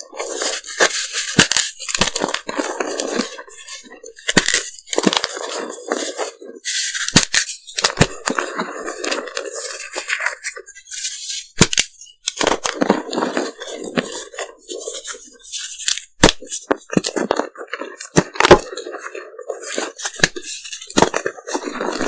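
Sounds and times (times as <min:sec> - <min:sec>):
chalk crunching: 0:00.2 - 0:22.0
chalk pieces snapping: 0:00.3 - 0:06.0, 0:06.8 - 0:12.8, 0:14.9 - 0:17.4, 0:19.7 - 0:22.0.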